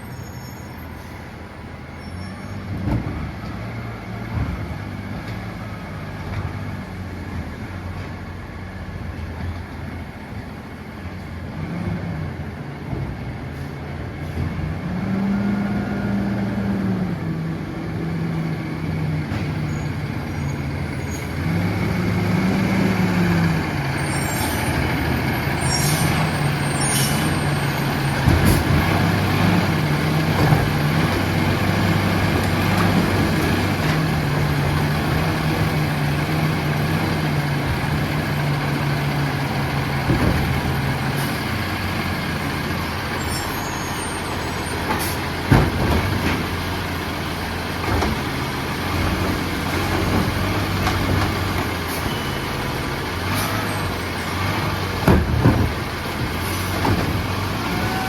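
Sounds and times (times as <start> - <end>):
garbage truck diesel engine revving: 13.6 - 58.0.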